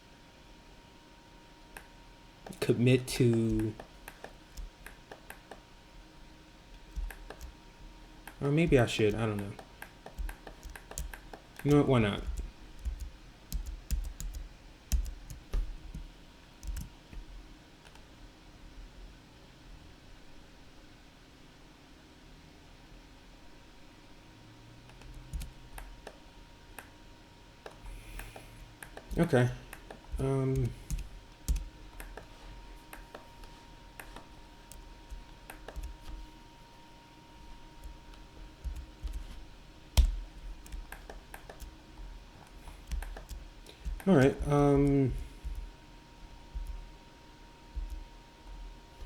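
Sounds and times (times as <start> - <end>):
computer keys clicking: 3.4 - 5.6, 6.8 - 7.6, 8.3 - 16.9, 24.9 - 26.2, 27.6 - 36.2, 38.6 - 39.4, 40.0 - 41.8, 42.4 - 45.7, 46.5 - 46.8, 47.8 - 48.0.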